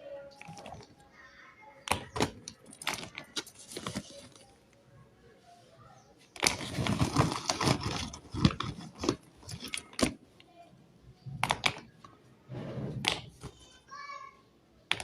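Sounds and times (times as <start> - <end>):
clay lumps clicking and crunching: 0.3 - 1.1, 1.8 - 4.8, 6.2 - 10.5, 11.2 - 12.2, 13.0 - 13.7.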